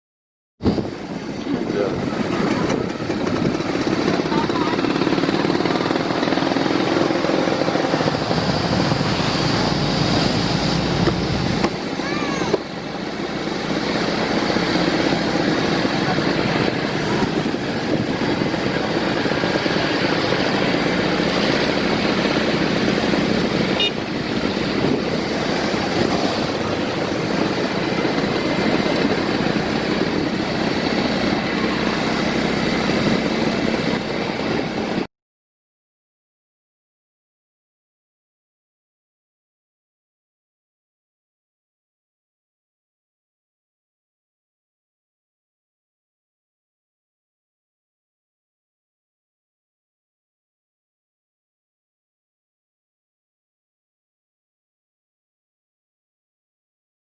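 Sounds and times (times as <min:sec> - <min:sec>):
storm surf: 0:00.6 - 0:35.1
strong wind buffeting microphone: 0:00.6 - 0:35.1.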